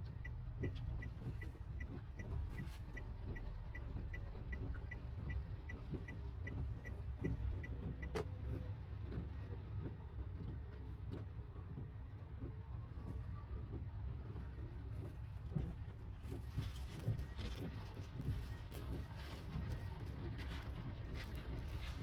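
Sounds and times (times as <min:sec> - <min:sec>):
light even ticking: 0:00.0 - 0:08.3
car cabin rumble on rough road: 0:00.0 - 0:22.0.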